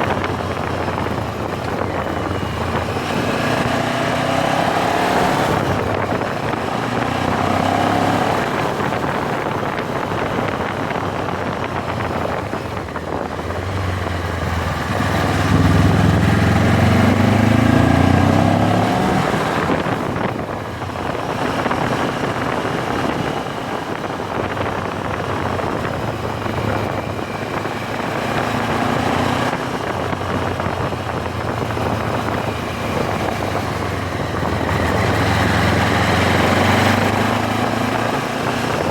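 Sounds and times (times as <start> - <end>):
motorcycle engine running: 0.0 - 38.9
wind noise: 0.0 - 38.9.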